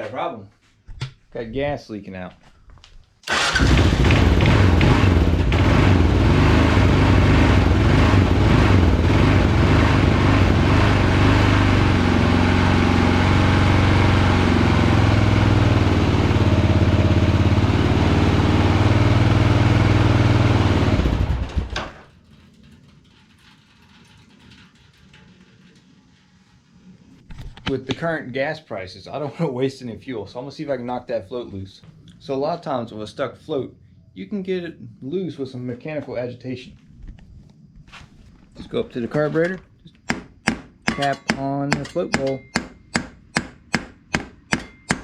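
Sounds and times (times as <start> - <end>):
motorcycle engine idling: 3.4 - 6.2.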